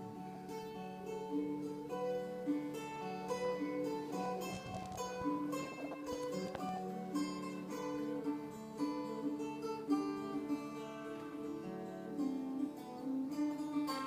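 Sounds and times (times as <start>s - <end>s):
plucked acoustic guitar melody: 0.0s - 14.0s.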